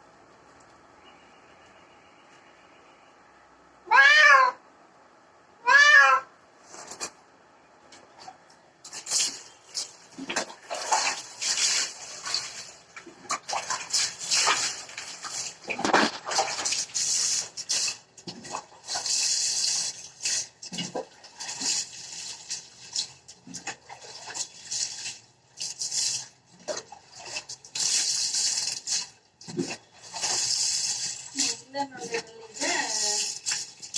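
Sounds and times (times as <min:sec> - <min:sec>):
water splashing: 0:08.1 - 0:33.9.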